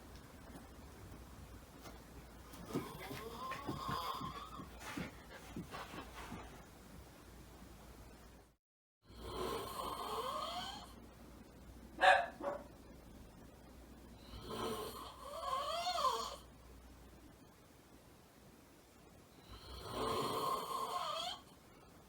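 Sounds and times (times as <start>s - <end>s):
man snoring heavily: 9.1s - 10.9s, 19.6s - 21.4s
dog barking: 12.0s - 12.8s.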